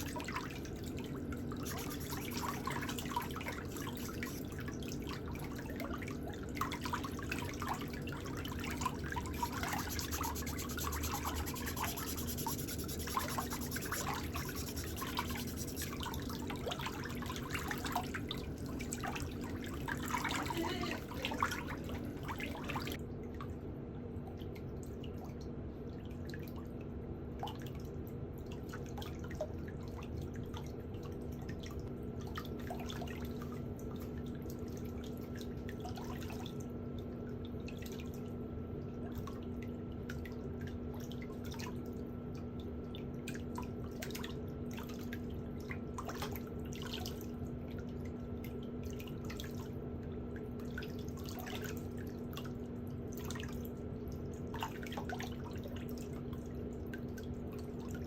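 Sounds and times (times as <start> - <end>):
drips: 0.0 - 5.6, 6.5 - 23.0
steady low hum: 1.0 - 5.9, 6.6 - 23.0.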